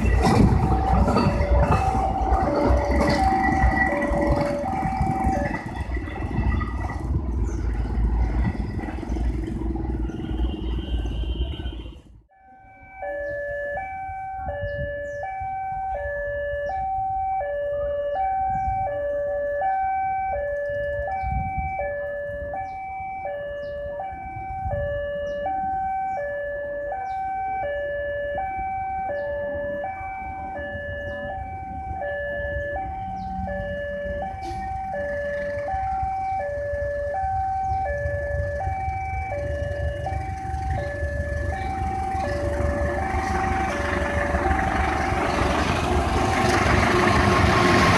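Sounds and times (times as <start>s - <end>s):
level crossing two-tone alarm: 0.0s - 7.2s, 12.3s - 47.9s
low rumble: 38.0s - 47.9s.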